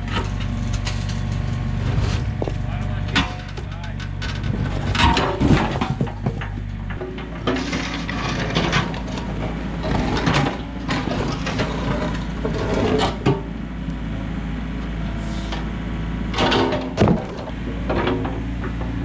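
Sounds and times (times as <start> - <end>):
excavator diesel engine running: 0.0 - 19.0
concrete knocking and scraping: 0.2 - 9.0.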